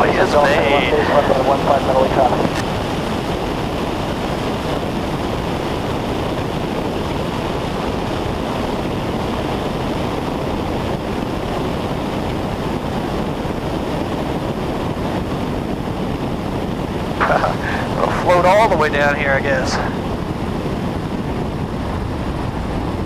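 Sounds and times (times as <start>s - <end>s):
aircraft engine and propeller drone: 0.0s - 23.0s
air rushing over airframe: 17.2s - 18.8s.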